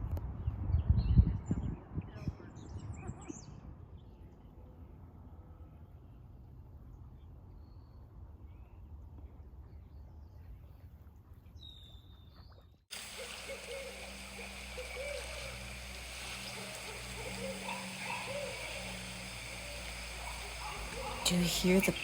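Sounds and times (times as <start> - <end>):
owl hooting: 12.9 - 22.0
steady low hum: 12.9 - 22.0.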